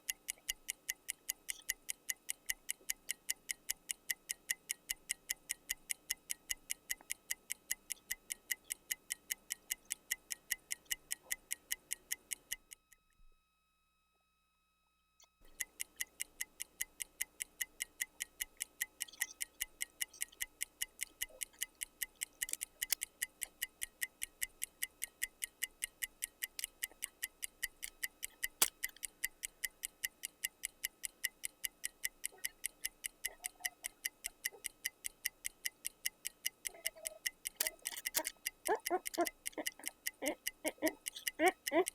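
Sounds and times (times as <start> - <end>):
clock ticking quickly: 15.4 - 41.9.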